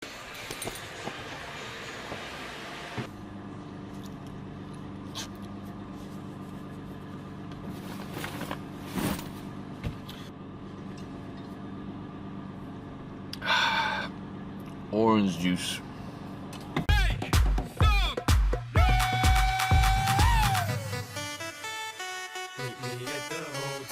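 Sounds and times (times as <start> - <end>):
low mechanical hum: 0.0 - 16.9.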